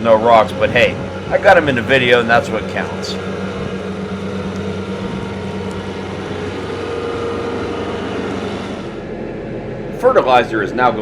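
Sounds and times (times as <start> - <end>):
skid loader engine running: 0.0 - 11.0.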